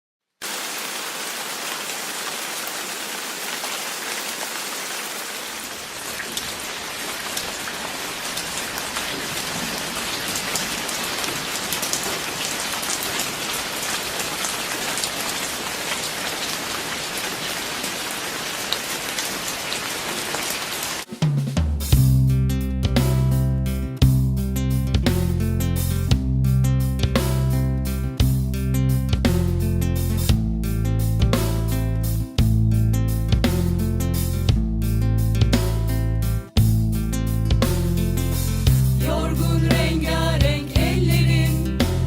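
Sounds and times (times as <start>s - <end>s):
steady rain falling: 0.4s - 21.1s.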